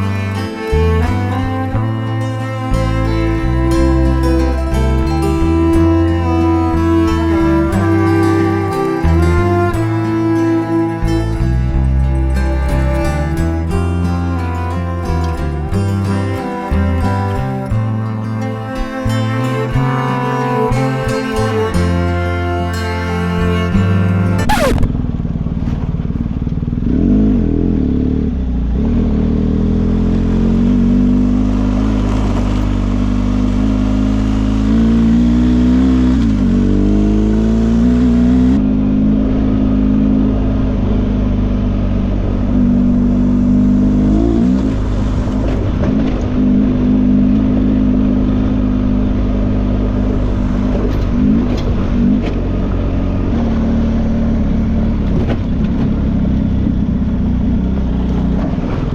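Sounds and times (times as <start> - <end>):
motorcycle engine running: 0.0 - 58.9
wind noise: 36.1 - 58.9.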